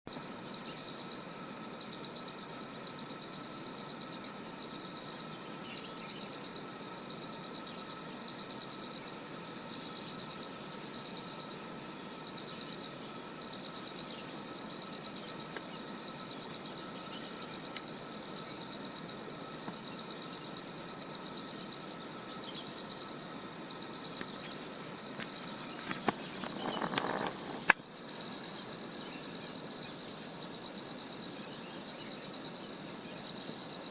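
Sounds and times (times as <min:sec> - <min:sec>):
insects chirring high-pitched: 0:00.1 - 0:33.9
low steady insect tone: 0:00.1 - 0:33.9
brief rustle: 0:25.5 - 0:27.8.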